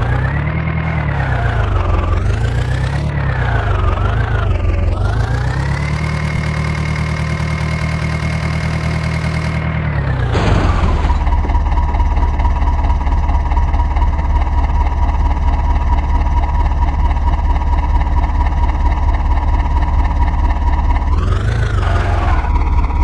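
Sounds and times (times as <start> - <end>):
heavy diesel engine revving: 10.3 - 11.8, 21.1 - 23.0.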